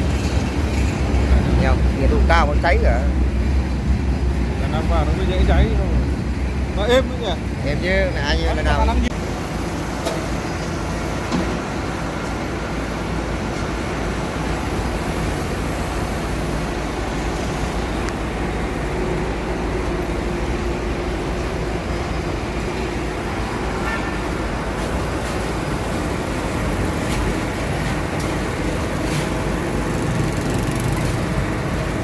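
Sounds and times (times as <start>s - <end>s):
industrial shredder running: 9.2s - 32.0s.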